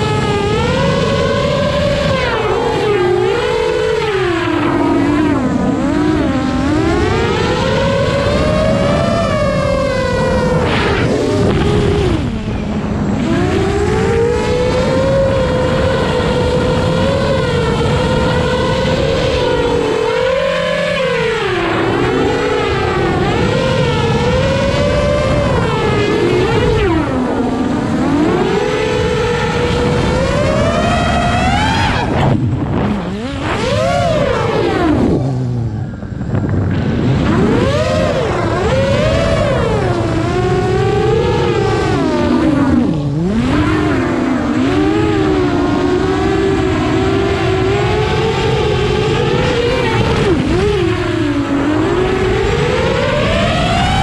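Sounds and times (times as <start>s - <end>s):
motor revving up and down: 0.0s - 54.0s.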